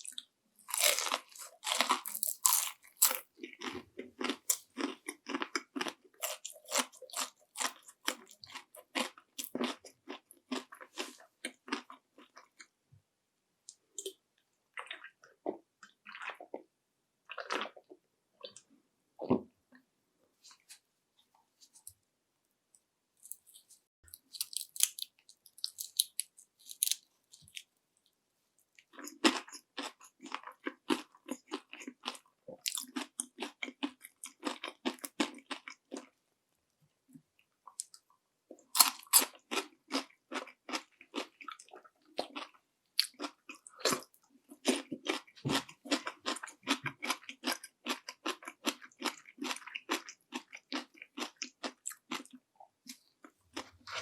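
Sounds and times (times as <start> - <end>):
crunchy chewing of fried food: 0.0 - 12.8, 13.7 - 18.8, 23.2 - 36.2, 37.4 - 54.0.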